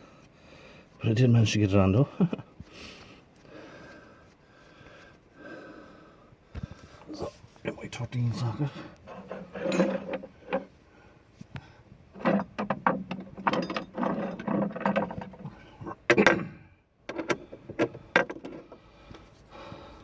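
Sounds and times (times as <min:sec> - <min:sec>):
metal hand tools clinking: 0:09.1 - 0:10.6, 0:13.1 - 0:15.2.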